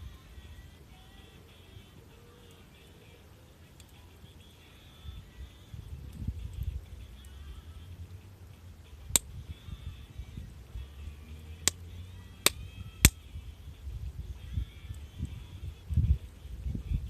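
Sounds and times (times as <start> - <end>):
low uneven rumble: 0.0 - 17.0
wood fire crackling: 0.2 - 16.6
sharp pops from burning wood: 9.0 - 9.4, 11.6 - 13.2.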